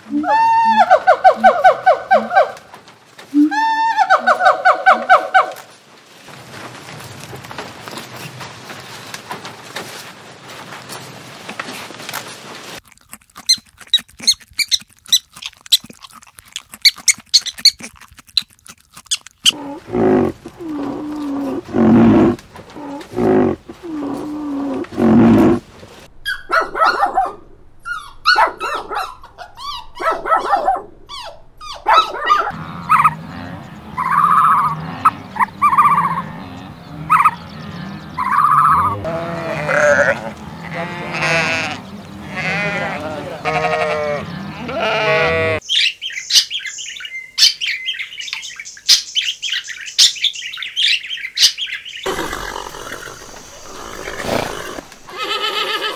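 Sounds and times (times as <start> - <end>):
animal clicking with high chirps: 13.1 - 19.6
loud pitched animal calls: 27.8 - 45.6, 52.1 - 55.9.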